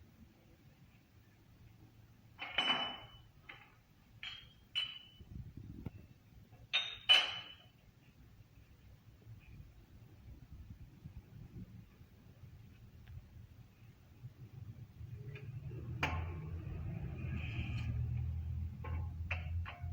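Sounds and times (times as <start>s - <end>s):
metal clinks and knocks: 2.4s - 5.5s, 6.6s - 7.8s, 18.6s - 19.9s.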